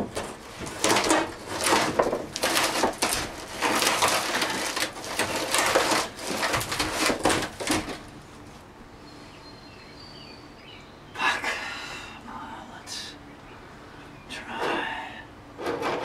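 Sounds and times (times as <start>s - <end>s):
debris crunching and crackling: 0.0s - 8.7s.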